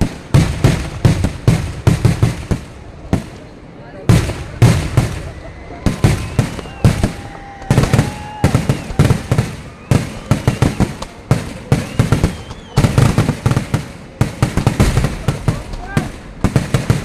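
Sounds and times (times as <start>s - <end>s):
fireworks bursting: 0.0s - 17.0s
faint firework whistling: 4.2s - 17.0s.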